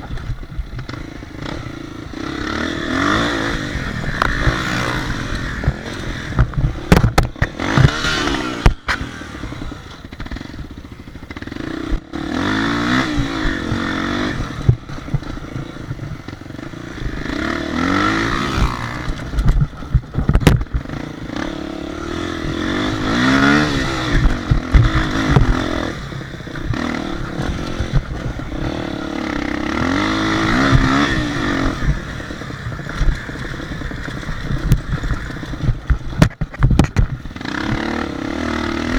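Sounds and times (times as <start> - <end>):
motorbike engines revving: 0.0 - 38.9
sharp knocks and clatter: 4.0 - 9.1, 18.0 - 21.5, 22.4 - 25.9, 29.6 - 38.1.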